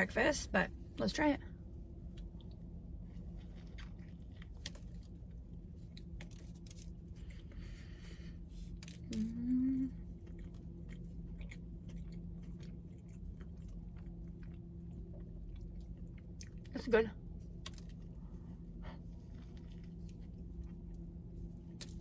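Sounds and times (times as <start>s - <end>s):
steady low hum: 0.0s - 22.0s
chewing and crunching: 1.4s - 22.0s
closed-mouth hummed mmm: 7.1s - 15.7s.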